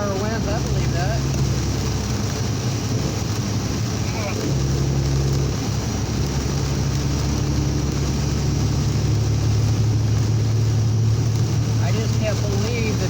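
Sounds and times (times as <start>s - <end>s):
diesel engine droning: 0.0s - 13.0s
heavy rain on wet road: 0.0s - 13.0s.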